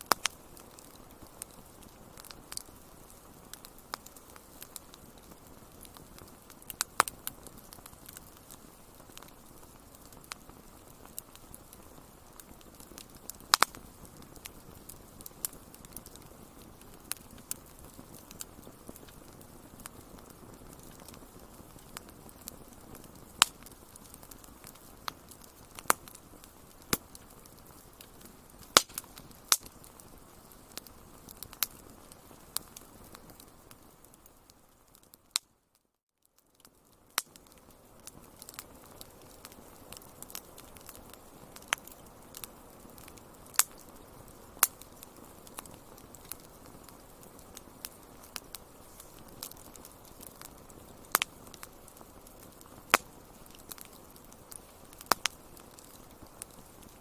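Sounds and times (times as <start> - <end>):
wood fire crackling: 0.0 - 57.0
soft hiss: 36.7 - 57.0.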